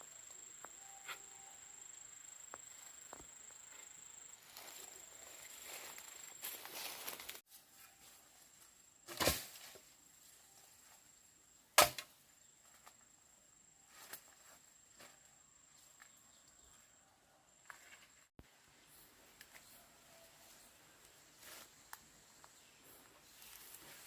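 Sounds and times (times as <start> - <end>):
faint high-pitched tone: 0.0 - 2.2.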